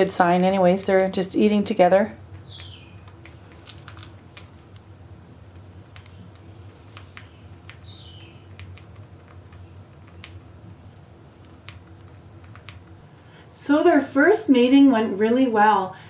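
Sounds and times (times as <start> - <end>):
beaks clicking on seeds: 2.3 - 4.9, 5.5 - 13.0
bird chirp: 2.4 - 3.1, 6.0 - 8.6.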